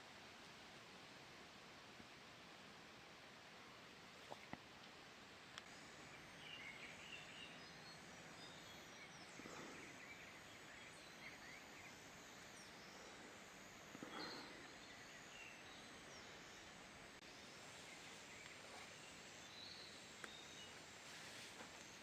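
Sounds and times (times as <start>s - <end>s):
faint forest ambience: 0.0s - 22.0s
low hiss: 0.0s - 22.0s.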